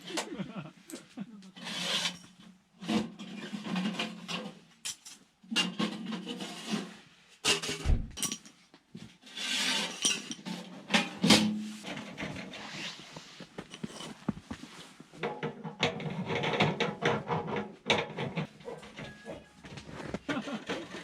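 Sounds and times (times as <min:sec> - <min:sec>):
objects clinking and rustling: 0:01.9 - 0:06.4, 0:07.5 - 0:08.7, 0:09.7 - 0:17.0, 0:17.9 - 0:21.0.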